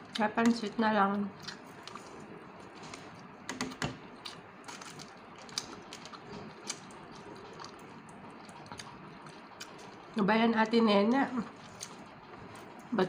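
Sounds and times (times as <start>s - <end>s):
person chewing food: 1.3s - 3.3s, 4.0s - 10.2s, 11.4s - 12.9s.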